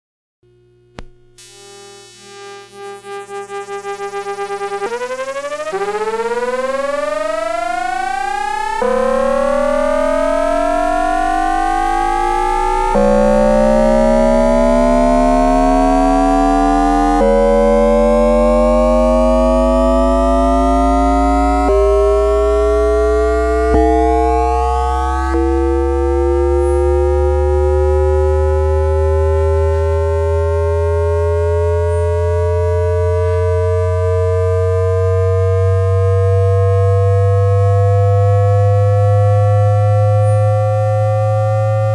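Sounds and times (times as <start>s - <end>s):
electric train inverter whine: 0.5s - 41.9s
low motor hum: 5.0s - 40.1s.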